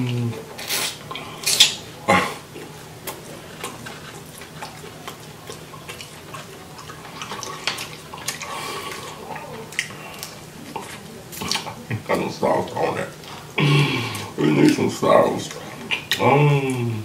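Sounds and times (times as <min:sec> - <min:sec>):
wet chewing with lip smacks: 0:00.4 - 0:14.8
bite tearing meat: 0:02.6 - 0:11.8.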